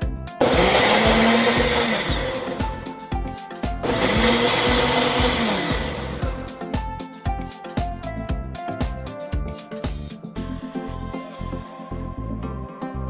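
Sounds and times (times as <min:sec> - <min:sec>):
soft background music: 0:00.0 - 0:13.0
blender motor whirring: 0:00.4 - 0:03.1, 0:03.8 - 0:06.6.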